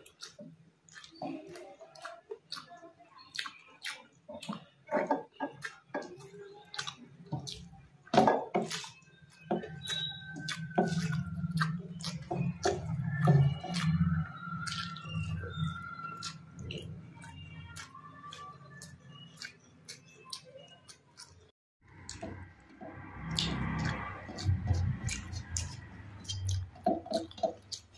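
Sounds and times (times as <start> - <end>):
wet chewing and eating: 0.0 - 27.9
sharp mouth clicks: 23.2 - 27.9.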